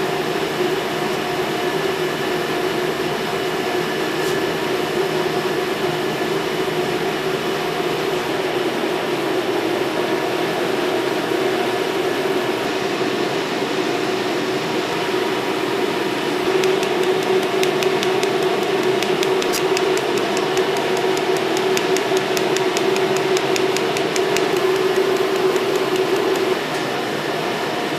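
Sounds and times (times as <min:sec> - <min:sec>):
machine power unit hum: 0:00.0 - 0:27.9
rapid laser pulse ticking: 0:16.5 - 0:26.6.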